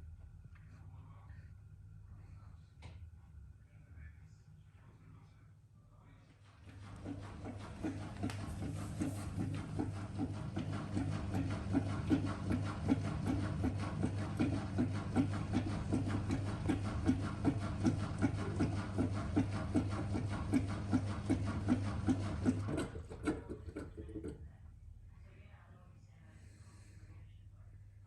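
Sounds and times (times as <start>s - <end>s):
washing machine humming: 6.4s - 24.6s.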